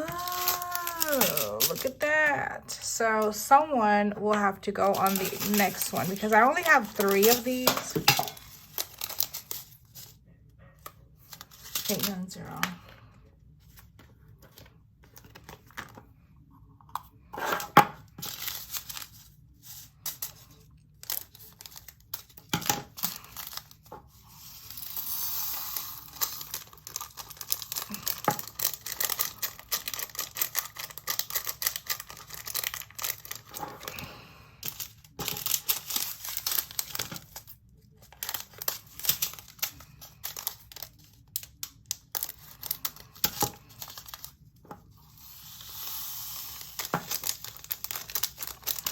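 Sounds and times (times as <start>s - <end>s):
beads pouring into plastic containers: 0.0s - 2.3s, 4.8s - 9.2s, 24.2s - 33.6s, 45.1s - 48.9s
plastic bags crinkling and tearing: 0.0s - 10.2s, 11.2s - 12.9s, 17.4s - 48.9s.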